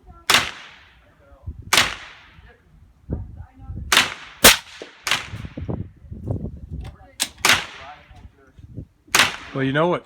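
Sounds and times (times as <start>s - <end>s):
rifle shots echoing: 4.0s - 5.4s.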